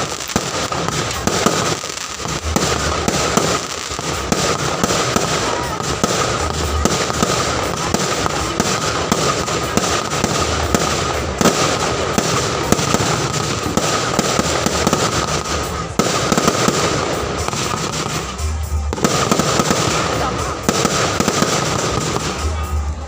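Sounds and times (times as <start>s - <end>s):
deep fireworks booms: 0.0s - 23.0s
fireworks crackling: 0.0s - 23.0s.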